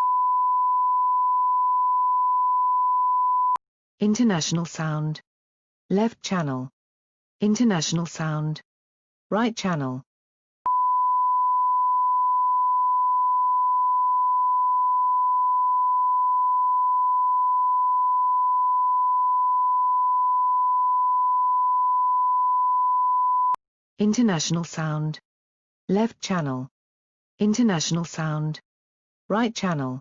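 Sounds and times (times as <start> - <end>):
sine-wave test tone: 0.0 - 3.6, 10.7 - 23.6.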